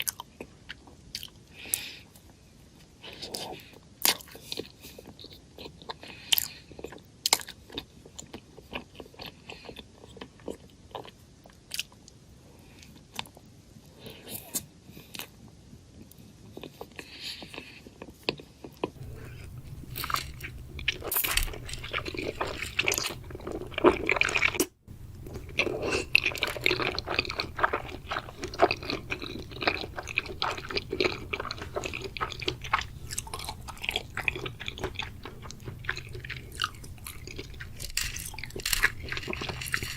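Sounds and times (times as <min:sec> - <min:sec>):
crunching and chewing snack: 0:00.0 - 0:39.9
low hum: 0:19.0 - 0:39.9.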